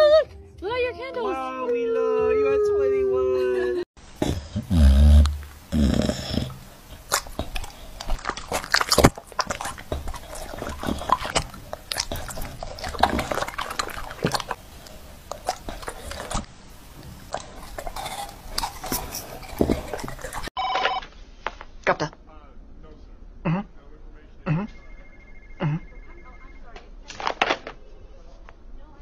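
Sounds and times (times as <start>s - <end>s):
chewing and crunching: 4.2s - 20.6s.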